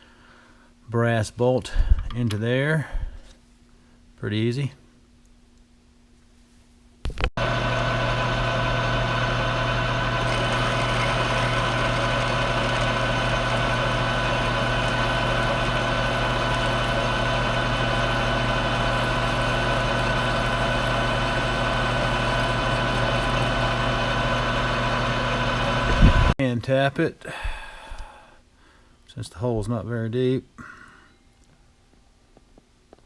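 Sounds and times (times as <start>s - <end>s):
lathe motor humming and whining: 7.4s - 26.3s.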